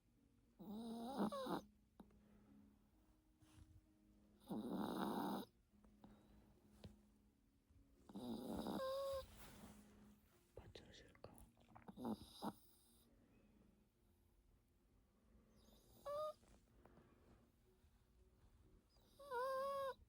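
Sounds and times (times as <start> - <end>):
dog snoring: 0.6 - 1.7, 4.4 - 5.5, 8.1 - 9.2, 11.8 - 13.0, 15.6 - 16.4, 19.1 - 20.0.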